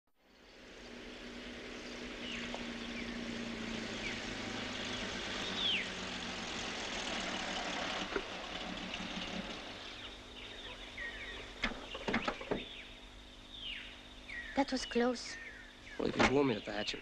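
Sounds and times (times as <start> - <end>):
car engine idling: 0.2 - 14.2
descending bird whistles: 4.0 - 6.0.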